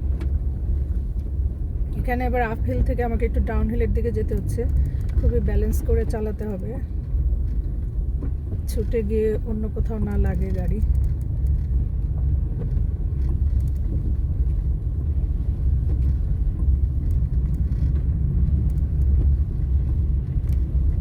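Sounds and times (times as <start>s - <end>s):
car driving over snow: 4.3s - 21.0s.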